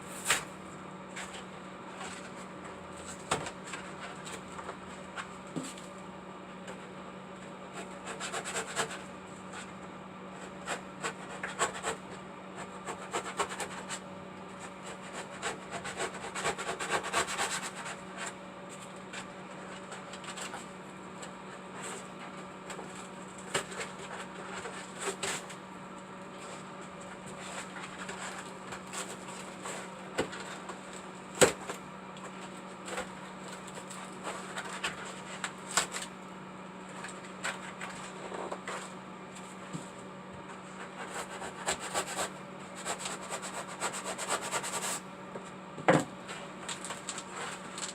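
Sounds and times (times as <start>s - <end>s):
steady low hum: 0.0s - 47.9s
rubbing and scraping: 7.7s - 9.7s, 10.3s - 18.4s, 19.0s - 25.6s, 26.3s - 36.2s, 36.9s - 45.0s, 46.2s - 47.9s.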